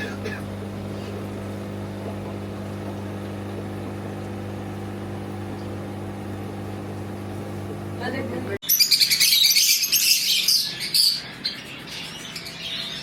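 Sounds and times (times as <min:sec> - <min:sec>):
low mechanical hum: 0:00.0 - 0:08.6.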